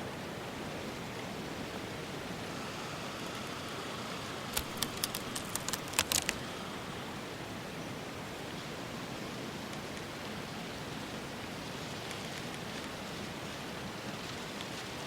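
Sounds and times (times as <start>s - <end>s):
rain hiss: 0.0s - 15.0s
sharp clicks: 4.5s - 6.4s.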